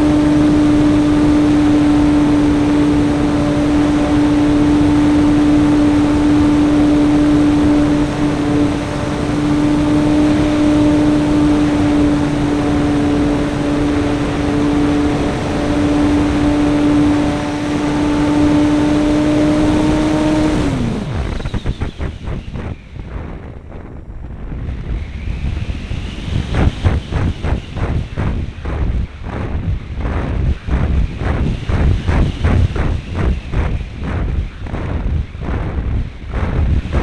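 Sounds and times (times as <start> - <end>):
air rushing over microphone: 0.0 - 37.0
model airplane engine drone: 0.0 - 37.0.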